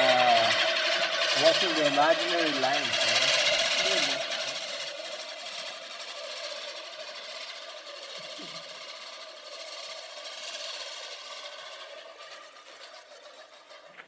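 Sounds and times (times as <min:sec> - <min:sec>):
lawnmower running: 0:00.0 - 0:14.0.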